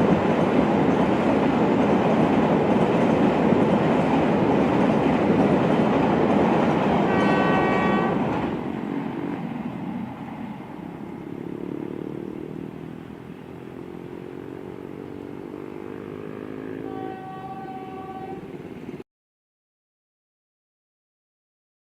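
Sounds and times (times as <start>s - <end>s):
passenger train running: 0.0s - 19.0s
train horn: 6.9s - 8.6s, 16.4s - 18.6s.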